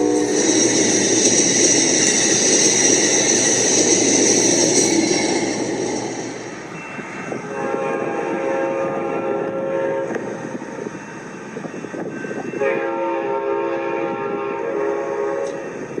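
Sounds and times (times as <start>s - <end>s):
high-pitched squeal: 0.0s - 12.6s
train wheels rushing on rail: 0.0s - 16.0s.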